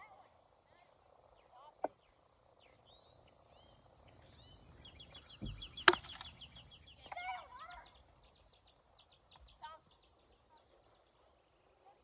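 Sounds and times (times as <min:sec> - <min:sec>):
rapid high bird chirps: 0:01.3 - 0:11.4
clucking bird calls: 0:03.3 - 0:08.4
single sharp crack: 0:05.8 - 0:06.4.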